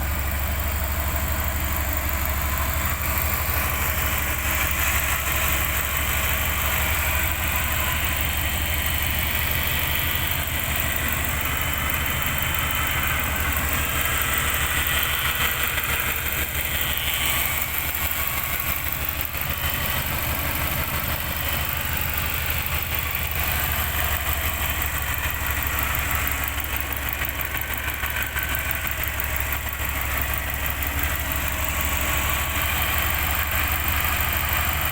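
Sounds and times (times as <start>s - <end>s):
boxer engine idling: 0.0s - 34.9s.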